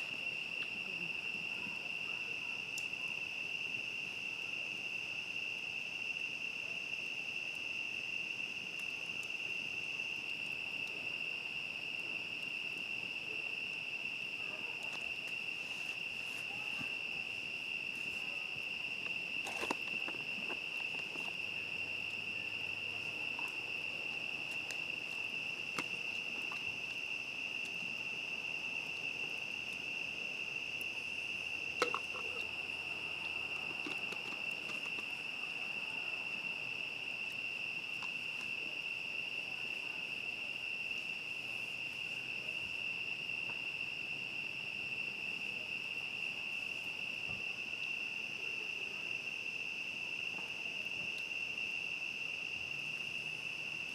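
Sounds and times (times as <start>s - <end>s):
crickets chirping: 0.0s - 53.9s
campfire pops and crackles: 8.4s - 28.1s, 30.7s - 35.3s.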